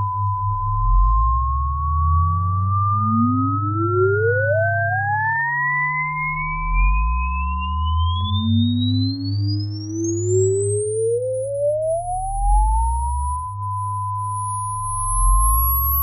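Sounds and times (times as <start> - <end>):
loud low bass tones: 0.0 - 4.7, 6.2 - 9.0, 14.6 - 16.0
rising sine-wave test tone: 0.0 - 16.0.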